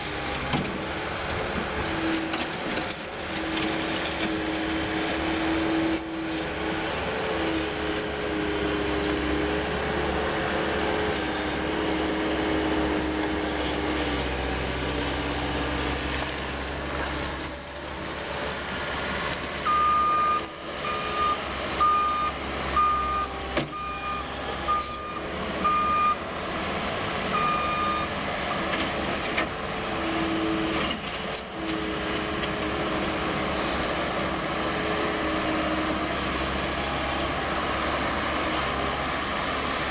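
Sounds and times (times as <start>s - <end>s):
diesel engine running: 0.0s - 39.9s
reverse alarm beeping: 19.7s - 26.2s, 27.4s - 28.1s.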